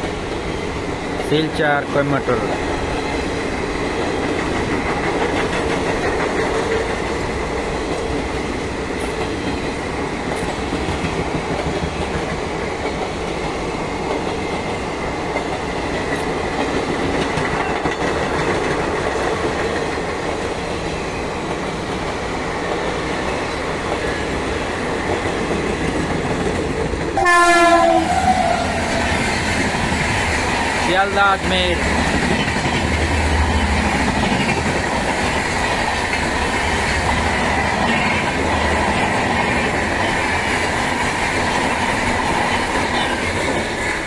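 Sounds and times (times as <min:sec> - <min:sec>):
train wheels rolling on rails: 0:00.0 - 0:44.0.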